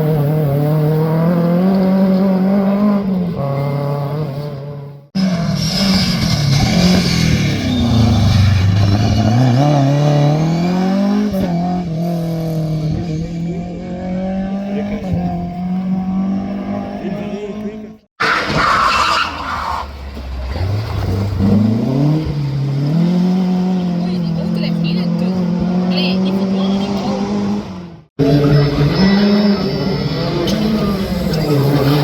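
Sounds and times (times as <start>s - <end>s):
rally car engine accelerating: 0.0s - 32.0s.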